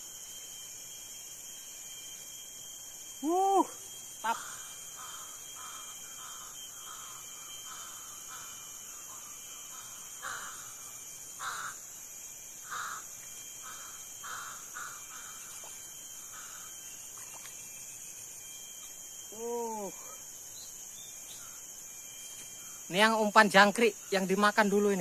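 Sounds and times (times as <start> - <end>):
high insect drone: 0.0 - 25.0
bird calling: 3.2 - 11.8, 12.6 - 17.6.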